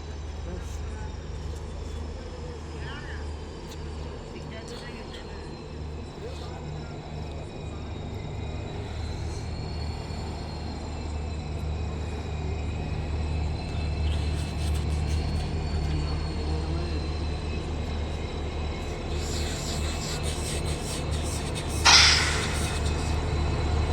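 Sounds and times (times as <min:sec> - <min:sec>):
locomotive low rumble: 0:00.0 - 0:23.9
faint high whine: 0:05.0 - 0:23.9.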